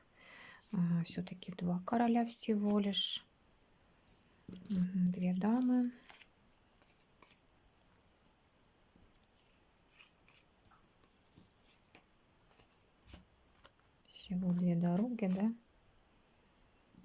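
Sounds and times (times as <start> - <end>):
playing cards clicking and swishing: 4.5 - 7.6, 9.2 - 15.5.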